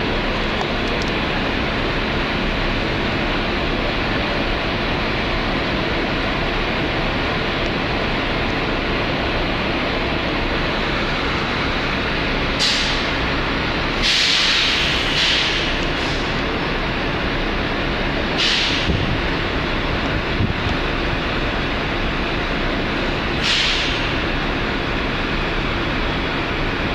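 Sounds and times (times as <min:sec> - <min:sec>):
diesel bus engine idling: 0:00.0 - 0:26.9
compressed air hissing: 0:12.6 - 0:13.2, 0:14.0 - 0:16.4, 0:18.4 - 0:19.1, 0:23.4 - 0:24.2.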